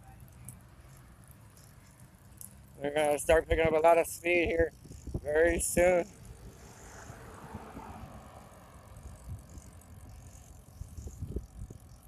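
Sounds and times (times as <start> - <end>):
bicycle tyre road noise: 0.0 - 12.0
wind buffeting microphone: 3.3 - 8.2, 8.9 - 12.0.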